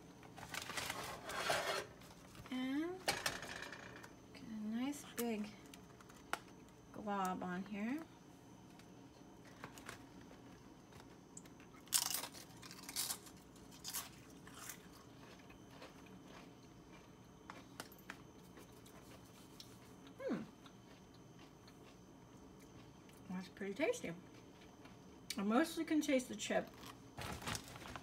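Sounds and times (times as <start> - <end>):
chewing crunchy chip: 11.4 - 22.0
person humming mm: 20.2 - 20.5.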